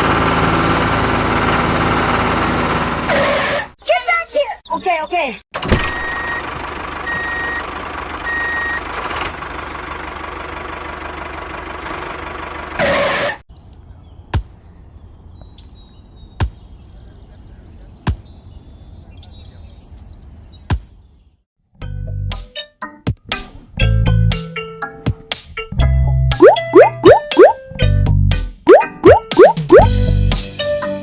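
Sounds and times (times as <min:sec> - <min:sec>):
vehicle engine running: 0:00.0 - 0:03.3, 0:06.4 - 0:12.8.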